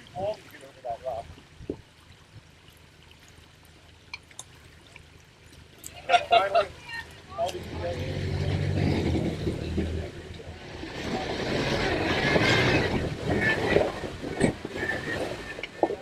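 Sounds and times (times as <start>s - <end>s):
engine running at low revs: 7.4s - 15.8s
vehicle noise rushing: 7.4s - 16.0s.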